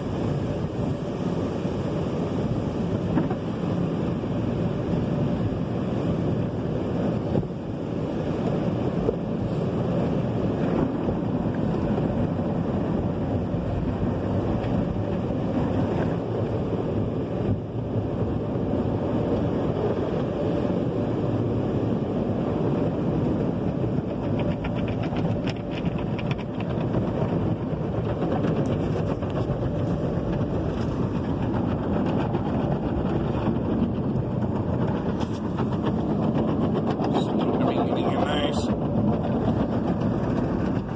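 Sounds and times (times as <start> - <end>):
car wash water spray: 0.0 - 31.6.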